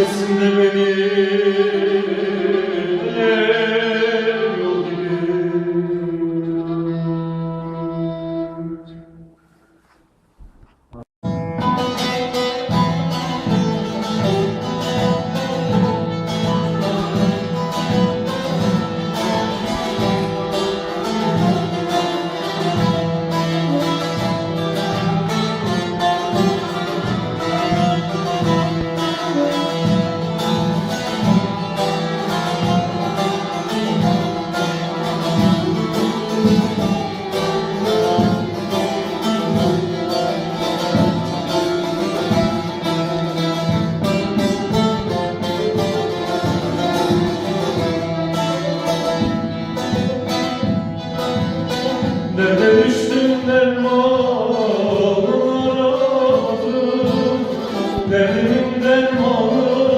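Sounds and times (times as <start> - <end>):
bowed string line: 10.6 - 52.8
plucked lute fast runs: 11.3 - 53.8.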